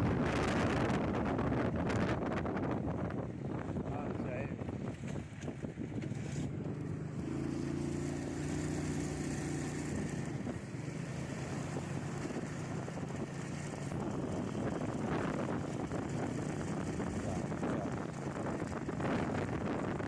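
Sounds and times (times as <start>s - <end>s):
road and wind noise: 0.0s - 20.0s
vehicle engine running: 4.7s - 20.0s.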